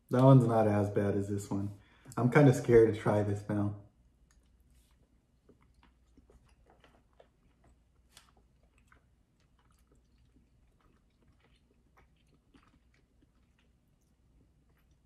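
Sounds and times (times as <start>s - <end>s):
chewing candy: 4.1s - 15.0s.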